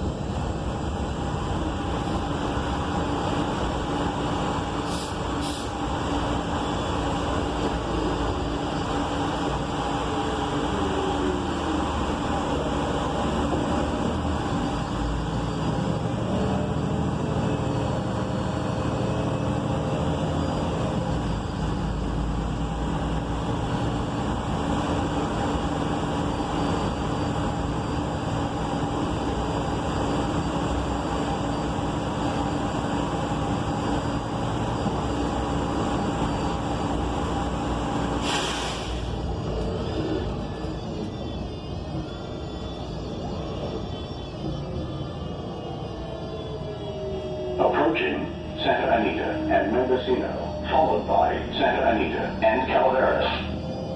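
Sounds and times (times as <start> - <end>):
bus engine rumble: 0.0 - 53.9
road noise: 0.0 - 53.9
faint whining tones: 39.1 - 53.9.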